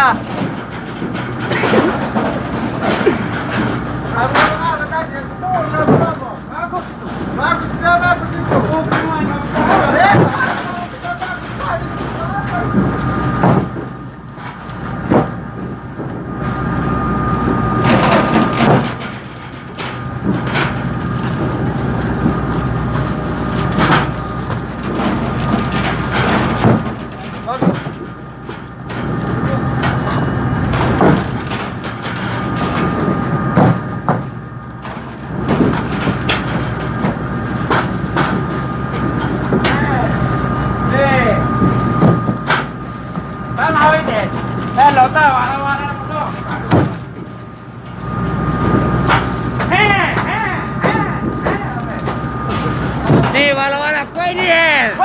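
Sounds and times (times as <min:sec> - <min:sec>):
sharp clattering knocks: 0:00.0 - 0:16.7, 0:17.3 - 0:55.0
boat machinery humming: 0:00.0 - 0:55.0.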